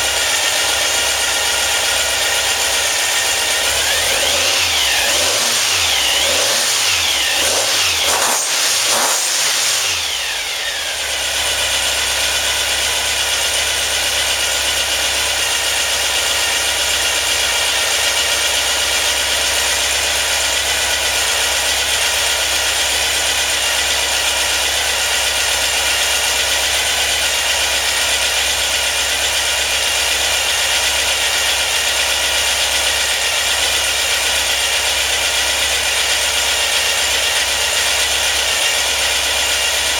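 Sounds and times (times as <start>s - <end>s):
car engine revving: 0.0s - 11.9s.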